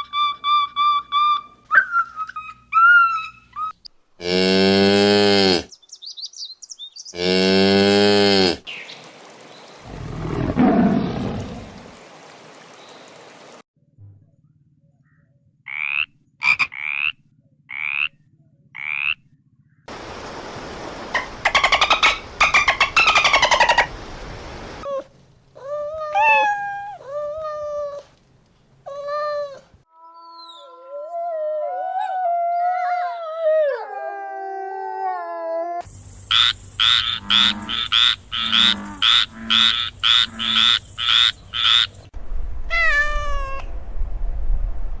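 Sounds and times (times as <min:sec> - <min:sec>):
frog croaking: 0:15.7 - 0:19.3, 0:36.3 - 0:42.0
animal calls: 0:26.0 - 0:27.2.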